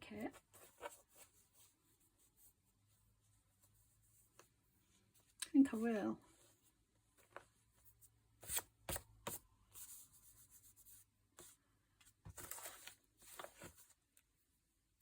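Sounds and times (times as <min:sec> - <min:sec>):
paper rustling on tabletop: 0:12.2 - 0:14.0.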